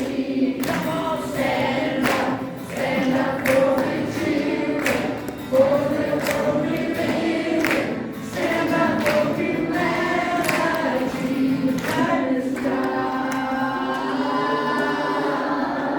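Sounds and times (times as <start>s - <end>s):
group of voices singing: 0.0s - 15.9s.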